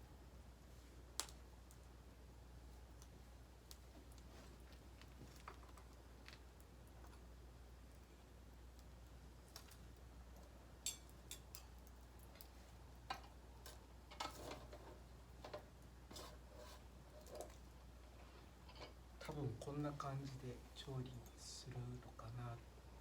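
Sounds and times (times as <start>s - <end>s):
low steady hum: 0.0s - 23.0s
wood fire crackling faintly: 0.0s - 23.0s.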